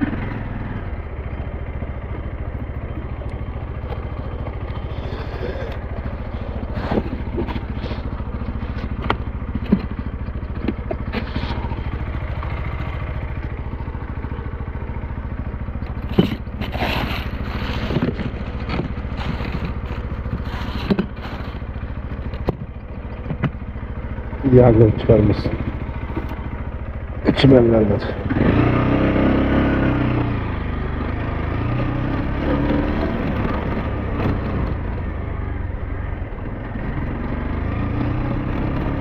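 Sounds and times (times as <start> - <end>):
motorcycle engine running: 0.0 - 39.0
short knocks and clatter: 4.7 - 11.7, 15.8 - 23.6.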